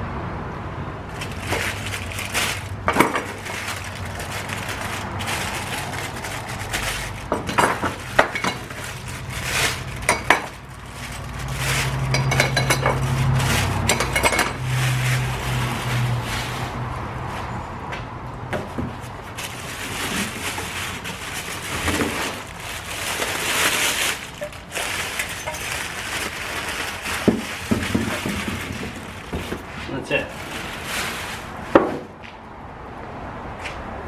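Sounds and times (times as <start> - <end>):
metal parts clinking: 6.8 - 13.1, 23.5 - 26.3.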